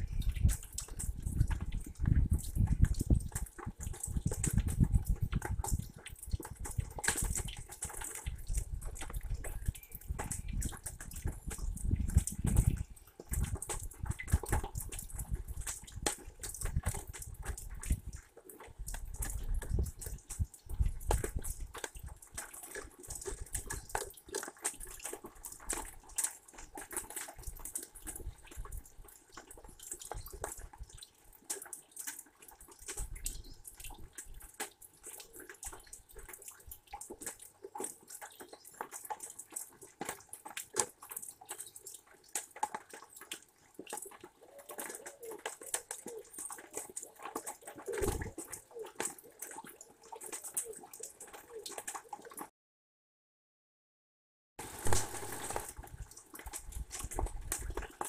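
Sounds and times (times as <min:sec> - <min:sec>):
rain falling: 0:54.6 - 0:57.4.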